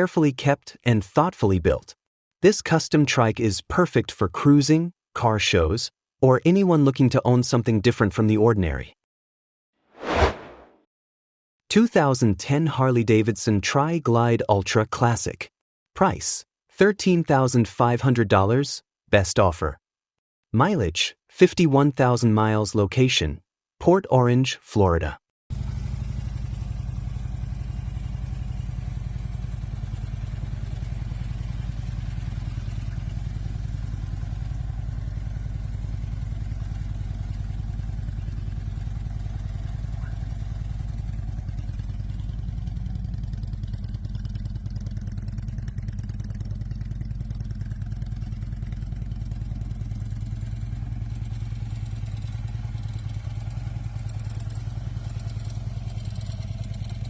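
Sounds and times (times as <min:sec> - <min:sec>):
motorcycle engine running: 0:25.5 - 0:57.0.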